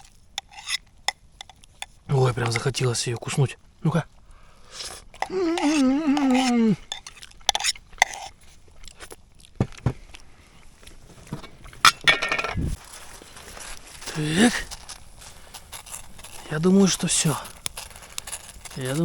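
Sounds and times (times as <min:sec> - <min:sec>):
person humming: 0:05.2 - 0:06.9
cookware taps and clinks: 0:11.9 - 0:12.7.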